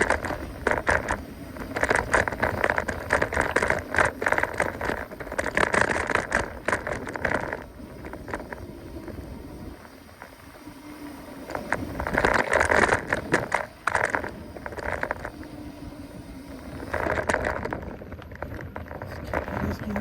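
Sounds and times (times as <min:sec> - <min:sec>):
bike rattling over bumps: 0:00.0 - 0:20.0
bike tyres on rough trail: 0:00.0 - 0:20.0.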